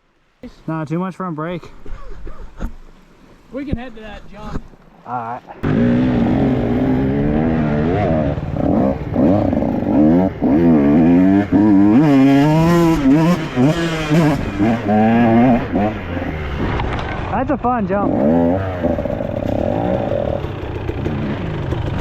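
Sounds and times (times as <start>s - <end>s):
dirt bike engine revving: 5.4s - 22.0s.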